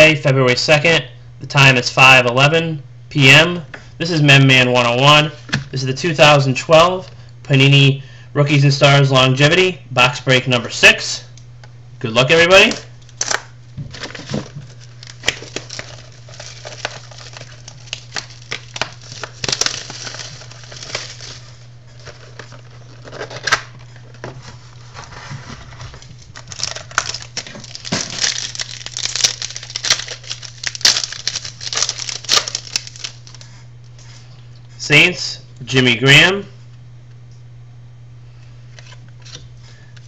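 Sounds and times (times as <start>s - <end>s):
plastic and foil wrapping tearing: 12.6s - 33.6s.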